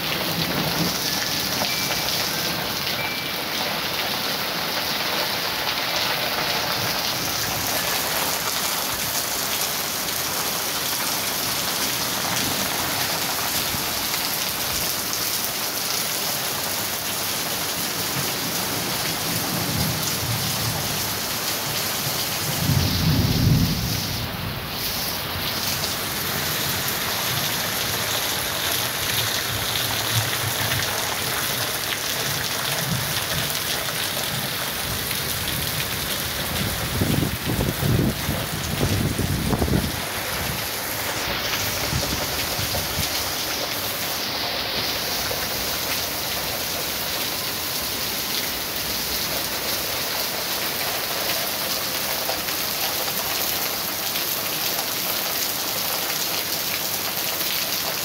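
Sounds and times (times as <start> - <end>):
heavy rain pouring: 0.0 - 58.0
thunder rumbling: 22.5 - 25.6.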